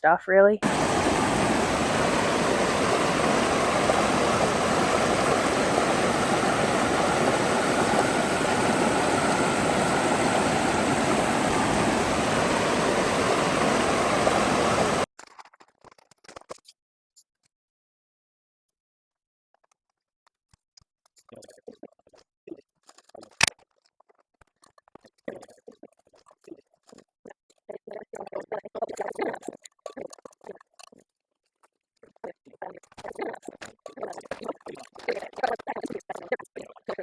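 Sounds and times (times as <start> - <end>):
creek water rushing: 0.6 - 15.1.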